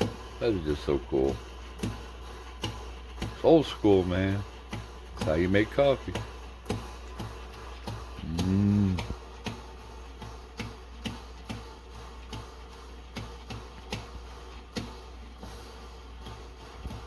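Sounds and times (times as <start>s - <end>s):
steady low hum: 3.9s - 9.4s
hummed voice-like tone: 8.2s - 9.2s.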